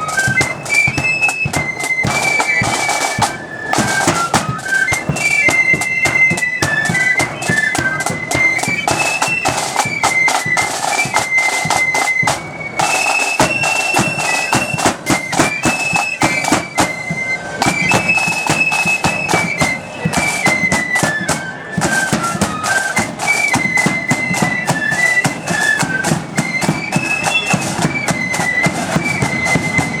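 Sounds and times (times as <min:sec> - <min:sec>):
rapid drumming: 0:00.0 - 0:30.0
shrill flute melody: 0:00.0 - 0:30.0.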